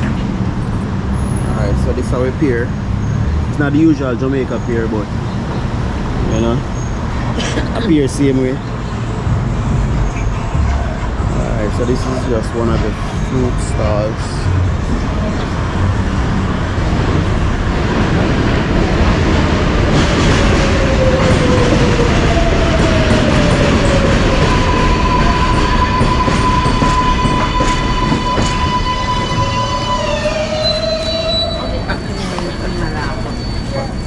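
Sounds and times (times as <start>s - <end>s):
train rumbling on rails: 0.0s - 34.0s
steady high squeal: 20.6s - 34.0s
wheel squeals sliding in pitch: 23.8s - 34.0s.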